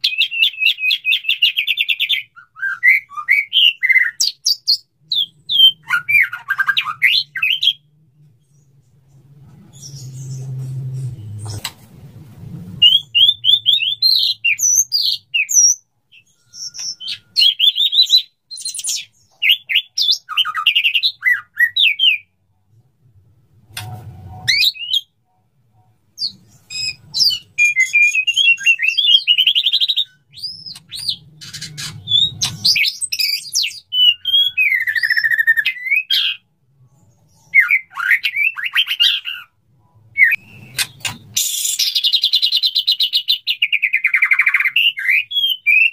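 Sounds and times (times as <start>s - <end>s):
bird singing whistles and trills: 0.0s - 7.9s, 12.8s - 22.3s, 24.4s - 25.2s, 26.2s - 36.4s, 37.4s - 39.5s, 40.2s - 45.9s.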